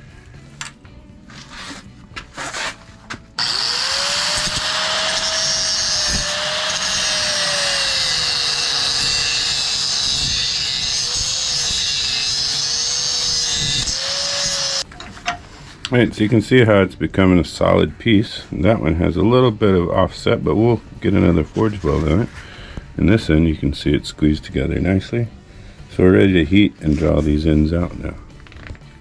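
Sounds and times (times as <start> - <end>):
angle grinder cutting steel rod: 3.4 - 15.4.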